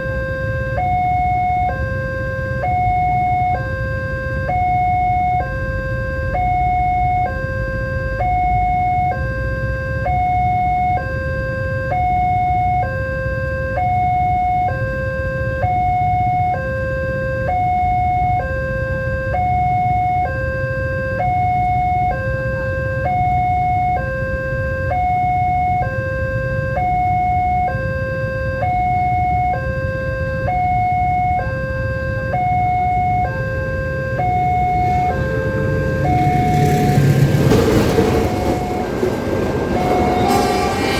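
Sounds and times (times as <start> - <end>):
two-tone level crossing alarm: 0.0 - 40.9
low rumble: 34.2 - 40.9.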